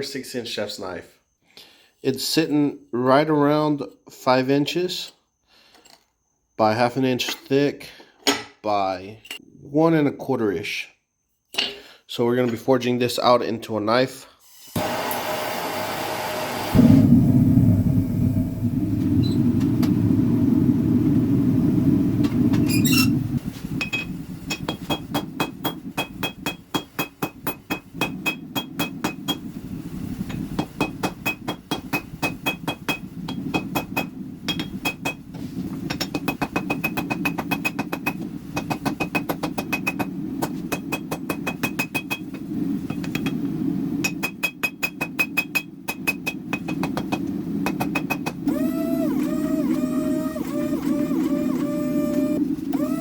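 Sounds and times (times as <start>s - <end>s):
forge rushing: 16.5s - 24.4s
hammer striking metal on anvil: 23.8s - 29.5s, 30.6s - 35.2s, 36.0s - 42.3s, 44.0s - 48.4s
motor whining: 48.5s - 53.0s.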